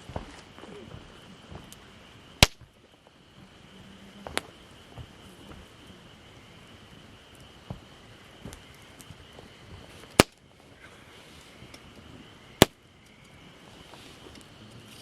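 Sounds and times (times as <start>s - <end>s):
wood cracking and snapping: 0.0s - 3.1s, 7.3s - 10.4s
insects droning: 0.0s - 15.0s.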